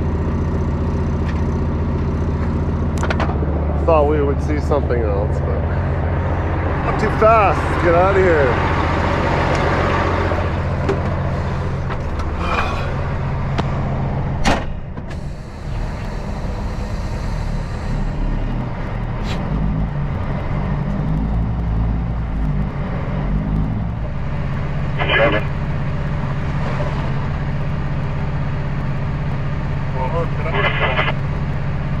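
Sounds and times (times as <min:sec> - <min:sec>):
truck diesel engine driving off: 0:00.0 - 0:30.4.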